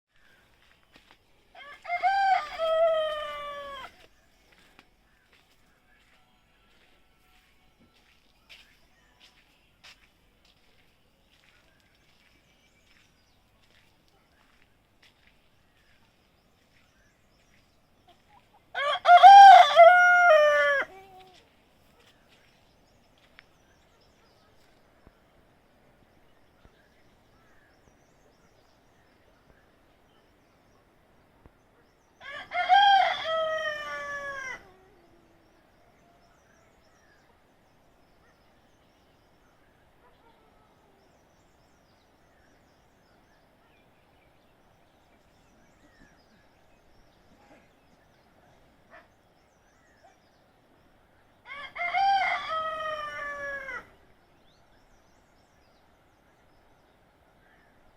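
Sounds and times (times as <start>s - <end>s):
rooster crowing: 1.6s - 4.0s, 18.7s - 21.0s, 32.2s - 34.8s, 51.4s - 53.9s.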